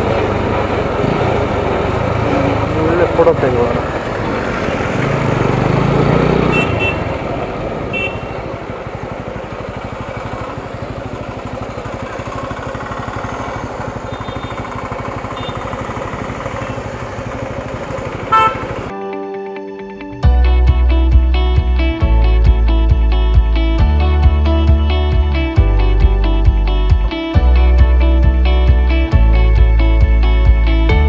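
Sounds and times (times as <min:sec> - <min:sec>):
motorcycle engine running: 0:00.0 - 0:18.9, 0:20.6 - 0:31.0
horn toots: 0:05.1 - 0:08.7, 0:13.3 - 0:18.9.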